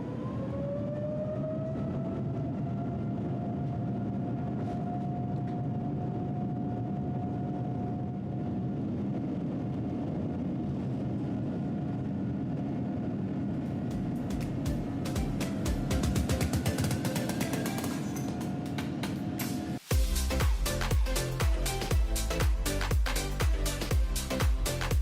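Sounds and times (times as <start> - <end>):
jet engines at takeoff power: 0.0 - 19.9.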